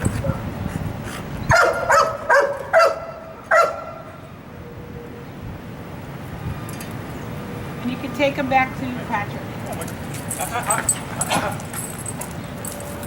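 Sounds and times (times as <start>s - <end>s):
dog barking: 1.5s - 4.0s.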